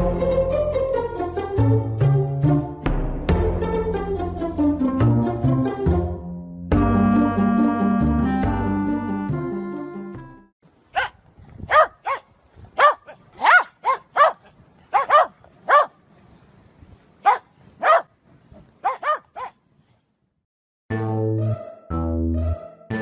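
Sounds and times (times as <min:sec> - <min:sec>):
music: 0:00.0 - 0:10.5, 0:20.9 - 0:23.0
dog barking in high yips: 0:10.9 - 0:16.0, 0:17.2 - 0:18.1, 0:18.8 - 0:19.6.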